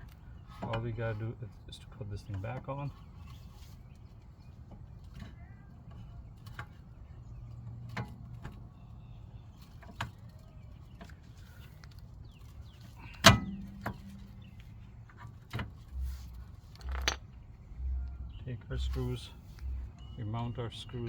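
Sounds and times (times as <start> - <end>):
metal clicks and knocks: 13.1 - 16.0, 16.7 - 18.2
loud ringing metal clank: 13.3 - 14.6.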